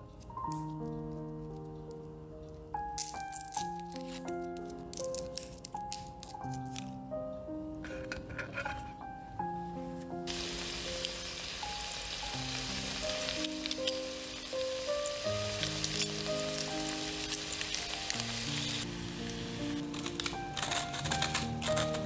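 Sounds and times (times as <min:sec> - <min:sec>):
background music: 0:00.0 - 0:22.0
potatoes and onion sizzling: 0:10.3 - 0:22.0.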